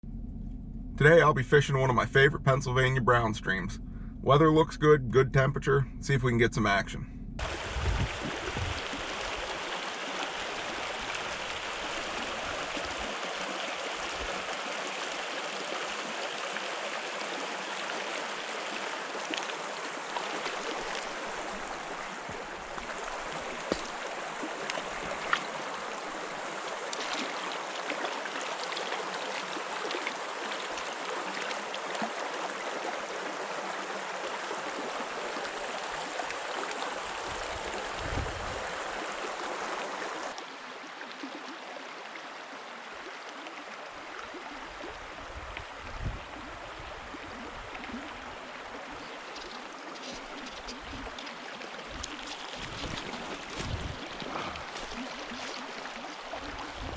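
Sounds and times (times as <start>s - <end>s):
brief low rumble: 0.0s - 8.7s
stream water running: 7.4s - 56.9s.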